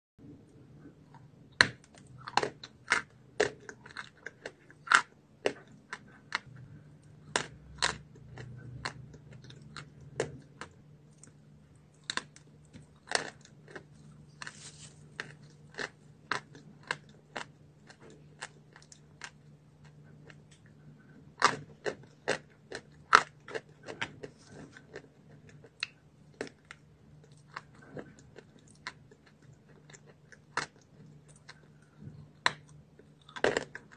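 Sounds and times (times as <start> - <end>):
quiet chewing: 0.5 - 33.9
chalk crunching: 14.3 - 15.3.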